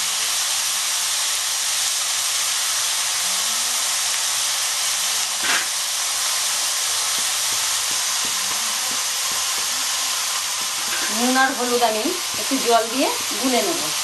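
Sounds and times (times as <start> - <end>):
chicken sizzling in oil: 0.0 - 14.0
spatula knock: 7.1 - 9.9.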